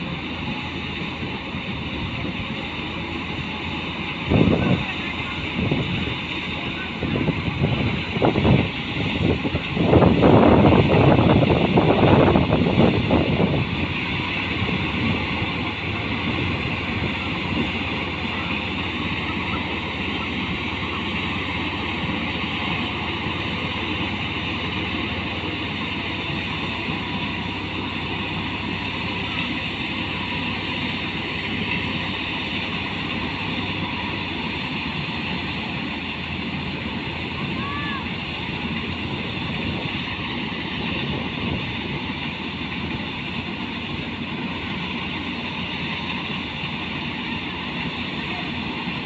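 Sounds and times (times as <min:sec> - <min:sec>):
tractor engine running: 0:00.0 - 0:49.0.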